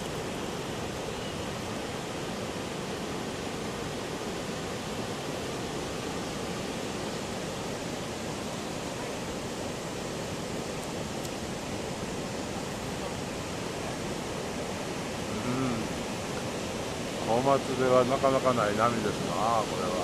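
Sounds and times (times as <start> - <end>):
ocean surf breaking: 11.7 - 20.0.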